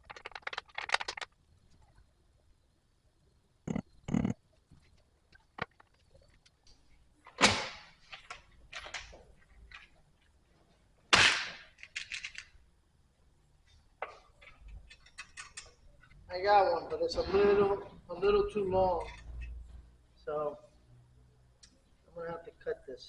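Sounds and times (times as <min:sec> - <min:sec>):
hard objects clattering: 0:00.0 - 0:01.4.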